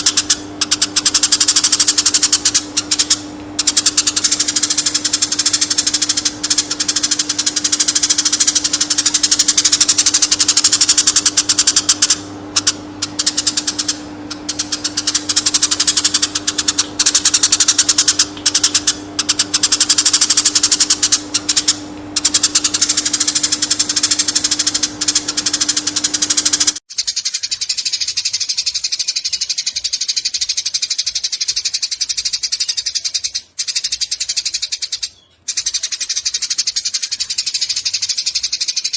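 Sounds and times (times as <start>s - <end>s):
sparrow chirping chatter: 0.0s - 38.9s
steady low hum: 0.0s - 38.9s.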